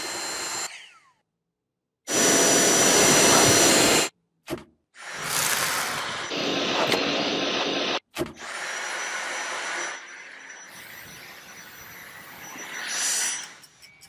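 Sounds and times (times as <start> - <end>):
vacuum cleaner running: 0.0 - 0.9, 2.1 - 4.1, 5.0 - 11.6.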